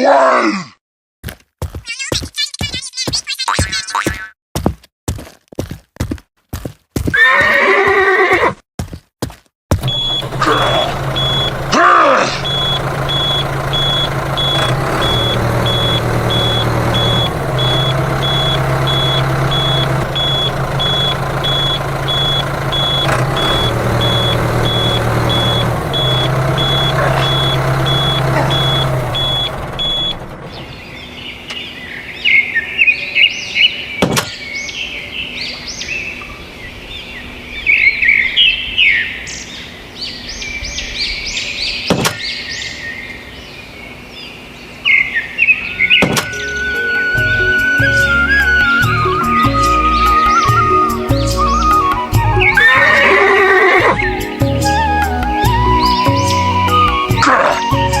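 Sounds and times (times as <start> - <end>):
horse neighing: 7.2 - 8.6, 52.6 - 54.1, 57.2 - 57.7
high repeating beep: 9.8 - 11.6, 12.3 - 30.2
birds chirping: 9.8 - 58.0.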